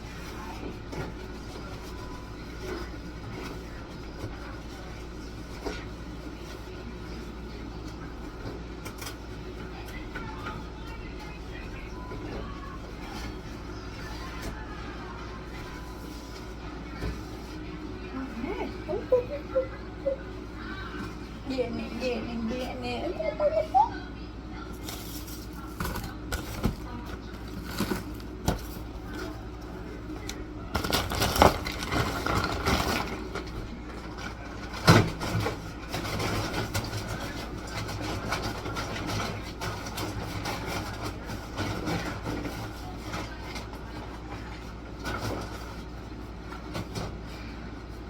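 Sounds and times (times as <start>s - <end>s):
household objects clattering: 30.7s - 44.4s.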